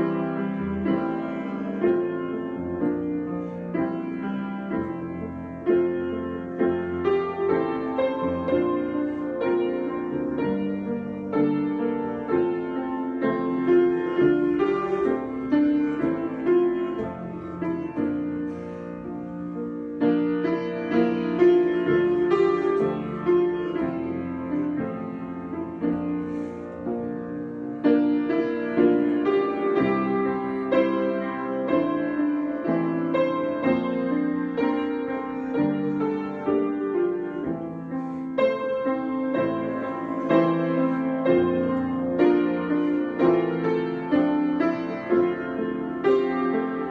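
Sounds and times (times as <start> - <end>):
solo piano improvisation: 0.0 - 46.9.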